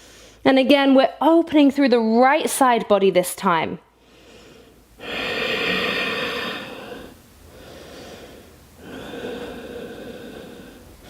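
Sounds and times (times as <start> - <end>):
person breathing deeply: 4.0 - 11.0.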